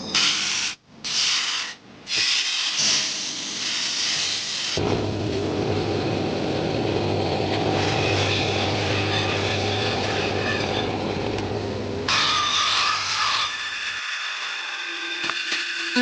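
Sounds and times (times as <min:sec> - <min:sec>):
electric machine humming and rushing: 0:04.2 - 0:16.0.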